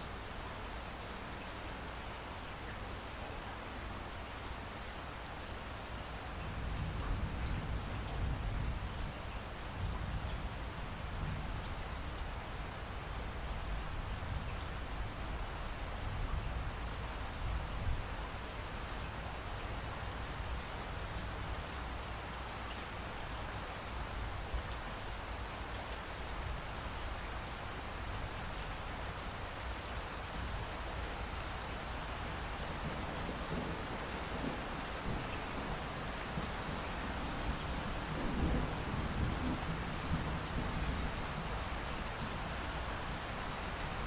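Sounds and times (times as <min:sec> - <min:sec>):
rush of falling water: 0:00.0 - 0:07.0, 0:07.8 - 0:44.0.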